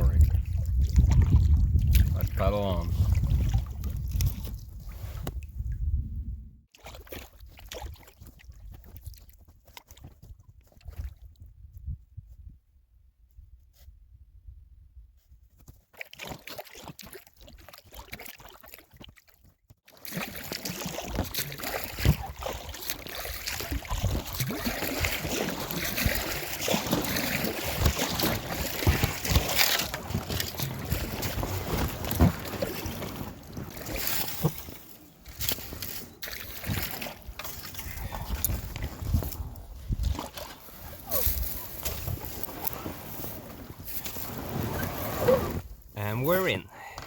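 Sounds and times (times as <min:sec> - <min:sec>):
water sloshing against boat: 0:00.0 - 0:05.6, 0:06.7 - 0:11.4, 0:15.8 - 0:47.0
paddle splashes: 0:06.7 - 0:11.3, 0:15.9 - 0:47.0.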